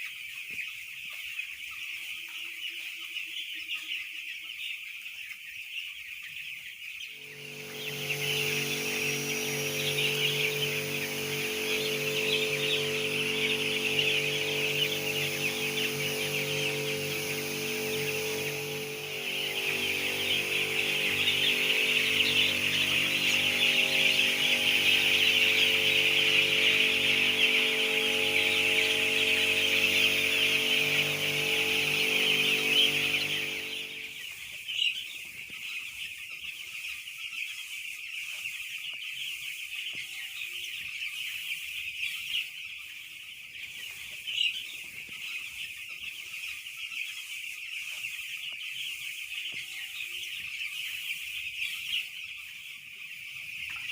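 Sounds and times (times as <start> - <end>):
chicks peeping: 0.0 - 53.9
steady machine hum: 7.1 - 34.5.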